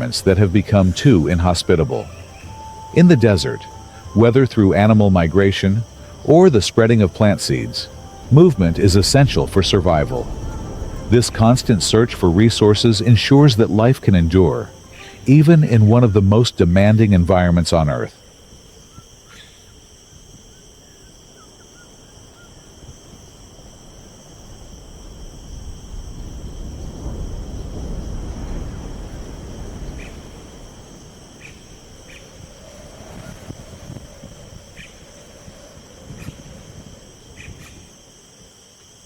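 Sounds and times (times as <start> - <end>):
low rushing noise: 0.0 - 17.2
crickets trilling: 0.0 - 39.0
short high chirps: 2.0 - 12.3.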